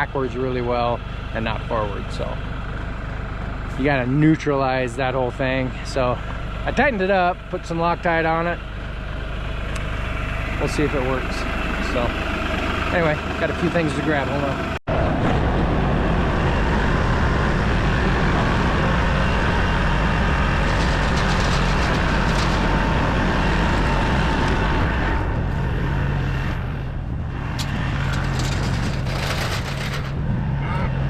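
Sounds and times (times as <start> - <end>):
tractor engine running: 0.0 - 31.0
light rattles and clicks: 20.6 - 23.0, 27.6 - 30.2.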